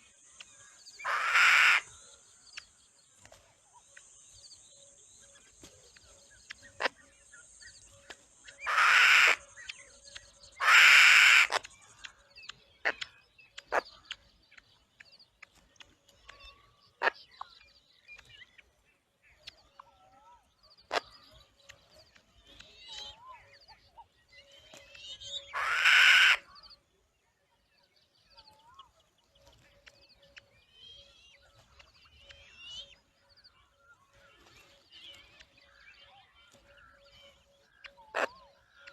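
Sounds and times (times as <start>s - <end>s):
harsh hissing bird calls: 0.6s - 2.2s, 6.6s - 9.8s, 10.6s - 11.7s, 25.5s - 26.5s.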